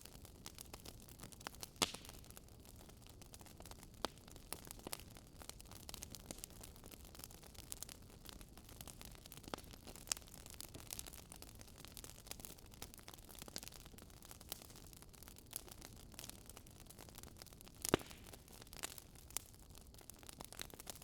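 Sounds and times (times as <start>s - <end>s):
wood fire crackling: 0.0s - 21.0s
loud fire snap: 17.8s - 19.0s.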